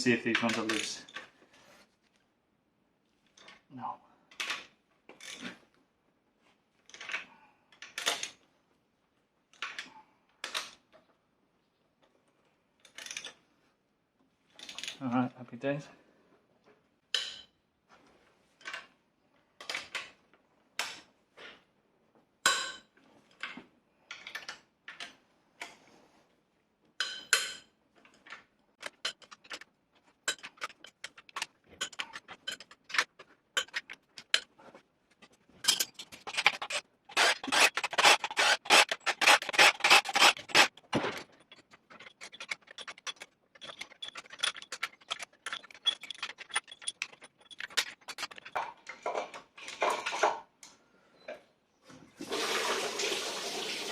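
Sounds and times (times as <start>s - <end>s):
hand ratchet clicking: 36.3s - 40.8s.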